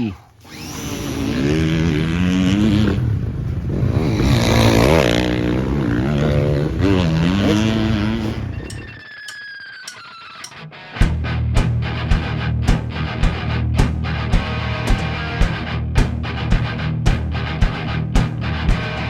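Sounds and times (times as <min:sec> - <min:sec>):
dirt bike engine revving: 0:00.4 - 0:09.0.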